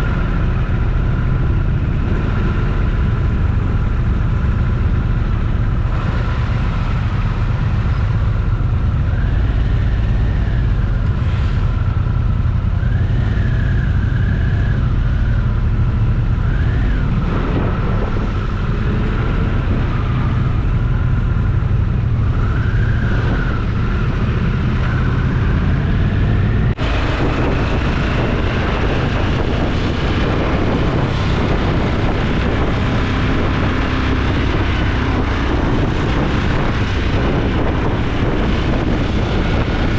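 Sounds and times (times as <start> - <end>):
motorcycle engine running: 0.0 - 39.9
wavering whine: 9.0 - 39.9.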